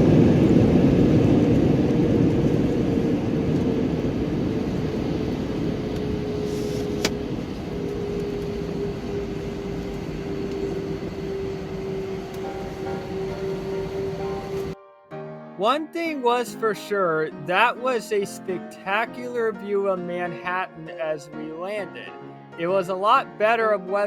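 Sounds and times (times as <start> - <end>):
jet engine rumble in cabin: 0.0 - 14.8.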